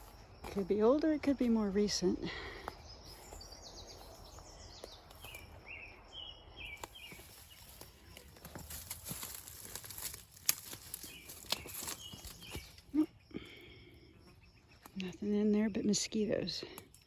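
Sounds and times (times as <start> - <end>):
footsteps on a trail: 0.0 - 13.6
bird chirping: 0.0 - 17.0.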